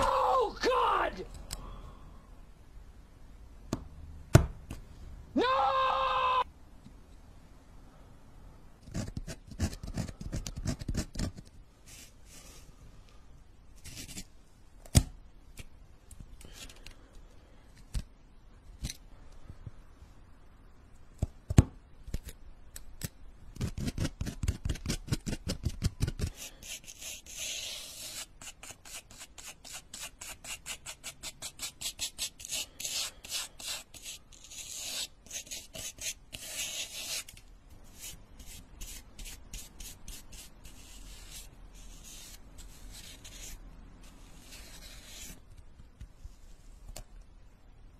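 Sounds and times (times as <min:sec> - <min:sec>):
tool scratching clay: 0:08.8 - 0:11.5, 0:23.6 - 0:45.4.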